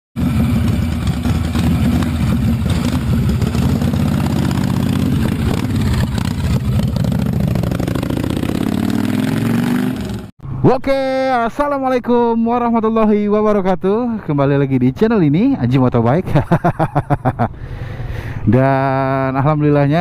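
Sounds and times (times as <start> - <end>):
motorcycle engine idling: 0.2 - 8.6.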